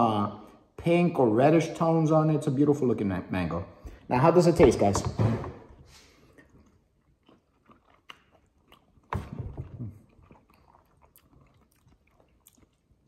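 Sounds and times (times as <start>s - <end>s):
people chewing mango: 5.9s - 13.0s.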